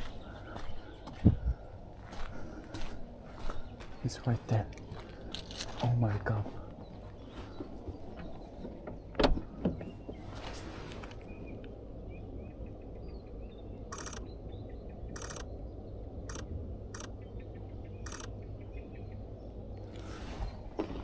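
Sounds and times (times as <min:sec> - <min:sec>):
camera shutter bursts: 0:13.9 - 0:14.2, 0:15.2 - 0:15.5, 0:18.1 - 0:18.3.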